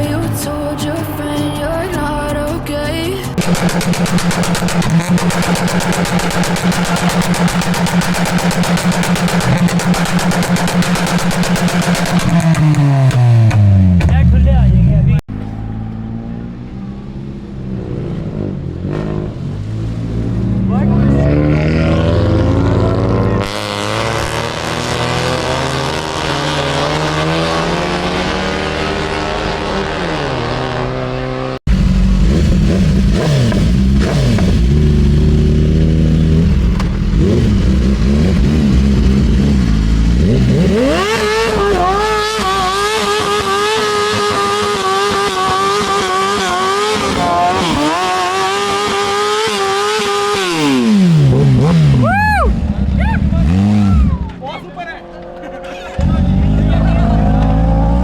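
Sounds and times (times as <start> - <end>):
car engines revving: 0.0 - 58.0
heavy low rumble: 31.7 - 42.1.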